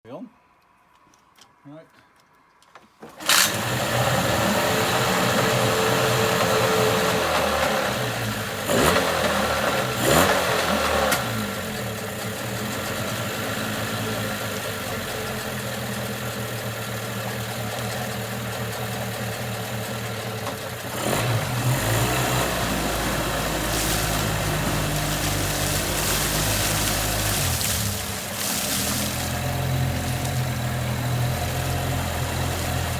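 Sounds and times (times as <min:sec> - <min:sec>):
outboard motor running: 0:14.2 - 0:32.9.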